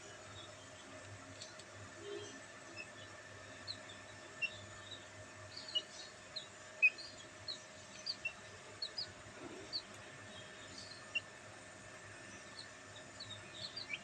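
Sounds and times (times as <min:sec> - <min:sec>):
faint steady hum: 0:00.0 - 0:14.0
chicks peeping: 0:02.7 - 0:11.4, 0:12.2 - 0:14.0.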